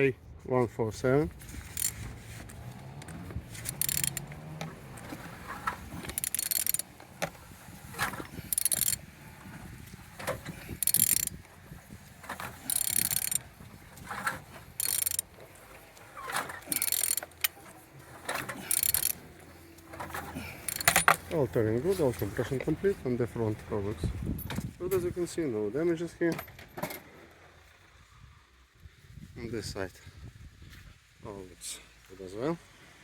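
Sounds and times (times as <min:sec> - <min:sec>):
ratchet wrench clicking: 0:01.6 - 0:02.0, 0:02.9 - 0:04.7, 0:05.9 - 0:06.9, 0:08.4 - 0:09.0, 0:10.6 - 0:11.5, 0:12.4 - 0:13.4, 0:14.8 - 0:15.3, 0:16.6 - 0:17.6, 0:18.4 - 0:19.2, 0:20.6 - 0:21.2.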